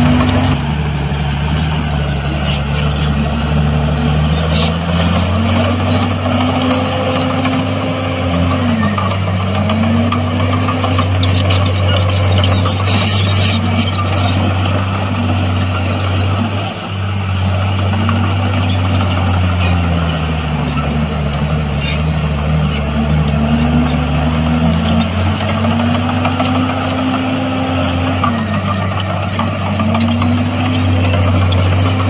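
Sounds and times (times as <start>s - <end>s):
bulldozer diesel engine humming: 0.0s - 32.0s.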